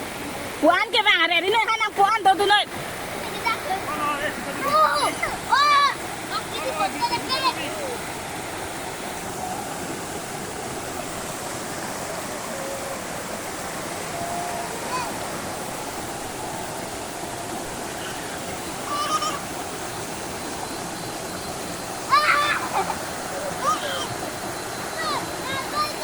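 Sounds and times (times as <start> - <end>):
waterfall rushing: 0.0 - 26.0
distant voice calling: 10.9 - 26.0.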